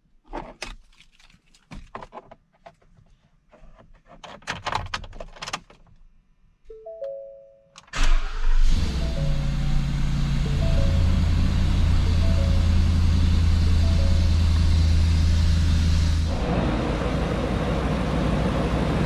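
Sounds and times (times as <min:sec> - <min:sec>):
truck engine starting and running: 0:07.8 - 0:19.0
short electronic chime: 0:08.7 - 0:15.5.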